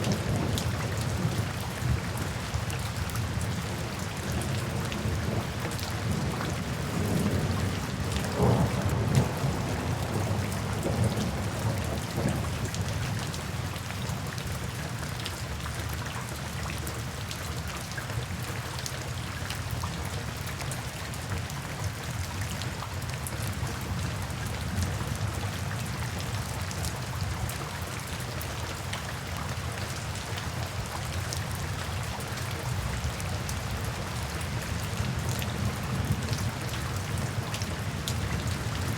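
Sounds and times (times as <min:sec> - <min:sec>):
steady rainfall: 0:00.0 - 0:38.9
low thunder rumble: 0:08.2 - 0:12.6.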